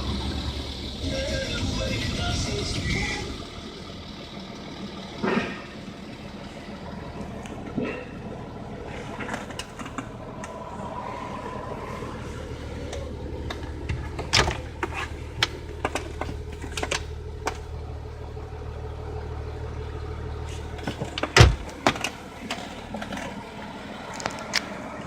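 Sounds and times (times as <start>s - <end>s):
diesel engine humming: 0.0s - 25.0s
loud thump: 21.4s - 21.7s.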